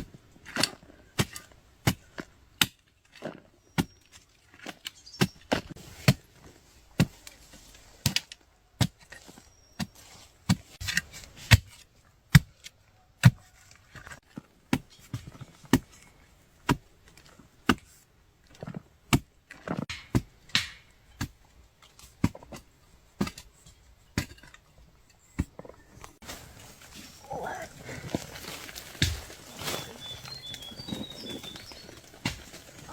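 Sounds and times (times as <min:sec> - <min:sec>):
scraping and rustling: 0:25.5 - 0:32.9
hoe chopping into earth: 0:28.4 - 0:32.9.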